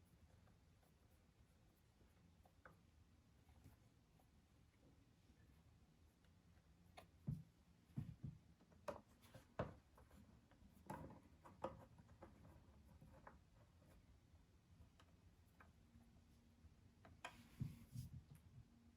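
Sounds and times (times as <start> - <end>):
faint clicks and light knocks: 6.2 - 14.0, 14.7 - 15.8.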